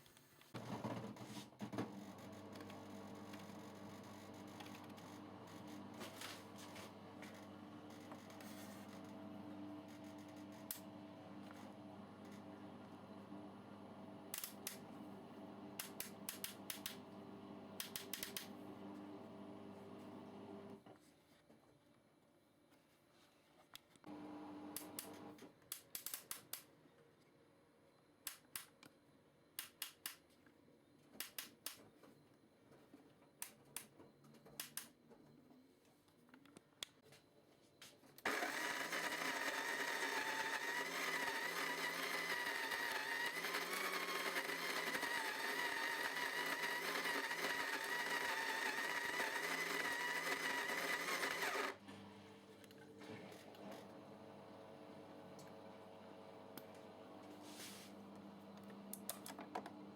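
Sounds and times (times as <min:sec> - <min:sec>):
coffee grinder motor whining: 0:38.3 - 0:51.8.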